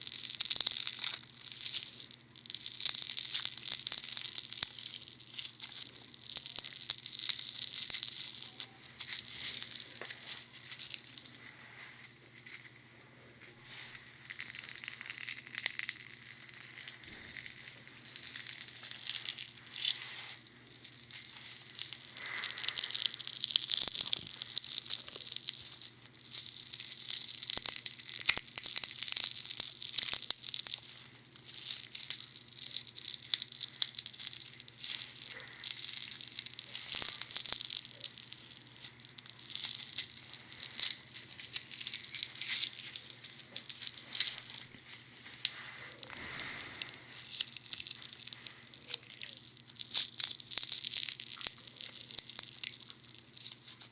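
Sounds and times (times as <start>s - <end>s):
foam crackling against microphones: 0.0s - 11.4s, 18.5s - 53.9s.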